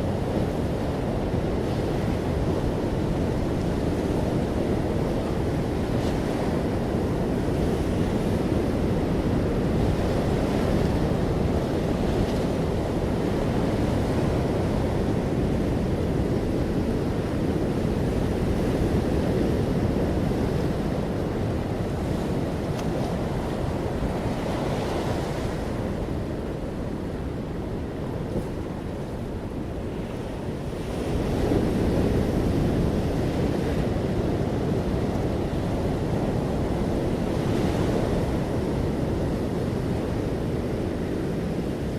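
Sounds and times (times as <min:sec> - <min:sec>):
ocean waves breaking on shore: 0:00.0 - 0:41.9.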